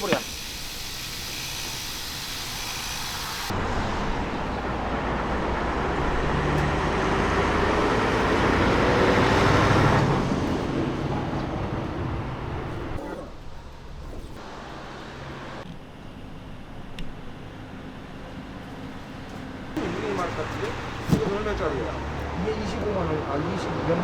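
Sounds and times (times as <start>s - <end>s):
motor vehicle passing by: 3.5s - 13.0s, 19.8s - 24.0s.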